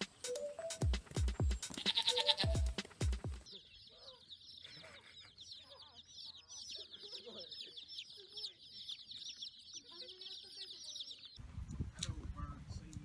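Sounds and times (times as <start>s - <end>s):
music with thumping beat: 0.0s - 3.5s
chicks peeping: 0.0s - 12.3s
chickens clucking: 1.6s - 11.4s.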